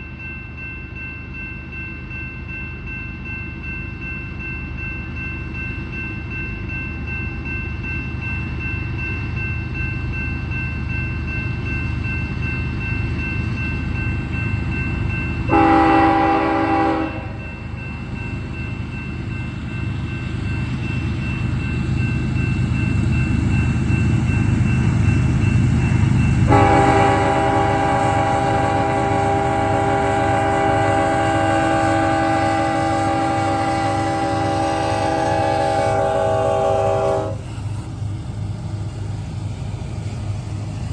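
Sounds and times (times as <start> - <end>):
diesel locomotives rumbling: 2.4 - 40.9
locomotive horn blasts: 15.5 - 17.4, 26.5 - 37.4.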